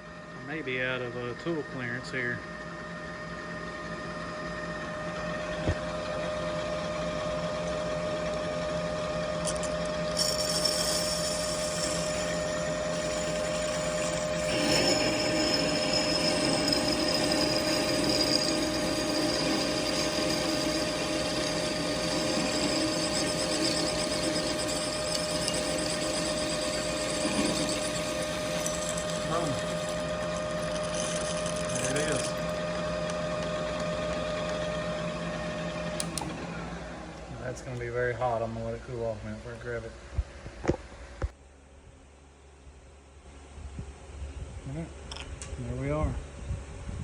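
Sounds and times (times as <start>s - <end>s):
high whine of cutting tool: 0.0s - 37.6s
metal lathe running: 0.4s - 37.2s.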